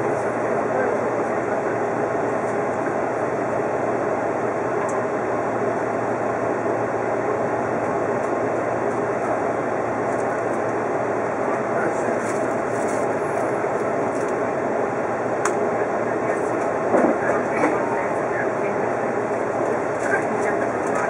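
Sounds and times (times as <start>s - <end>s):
electric train running: 0.0s - 21.0s.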